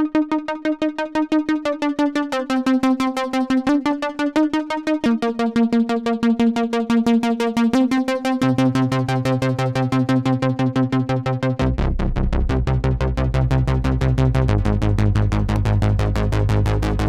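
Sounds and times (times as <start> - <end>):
synthesizer arpeggio: 0.0 - 11.8.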